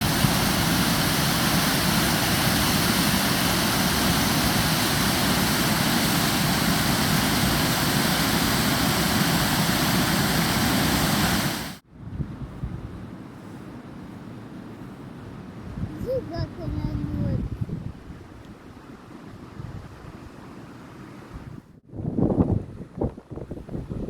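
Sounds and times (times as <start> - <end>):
water rushing over a waterfall: 0.0 - 11.8.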